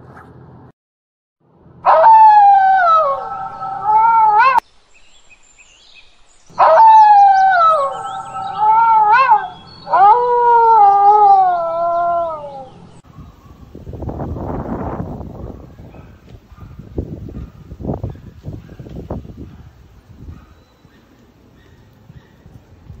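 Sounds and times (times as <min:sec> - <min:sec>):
wolf howling: 0:01.8 - 0:04.6, 0:06.5 - 0:13.0.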